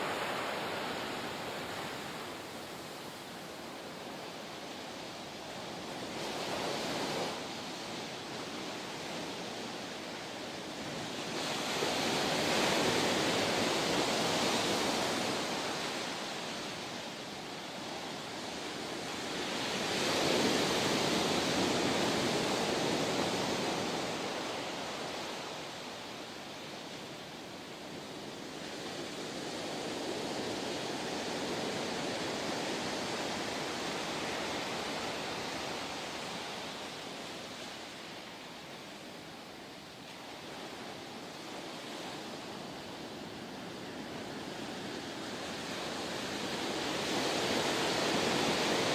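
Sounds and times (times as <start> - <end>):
waves breaking and washing in: 0.0 - 48.9.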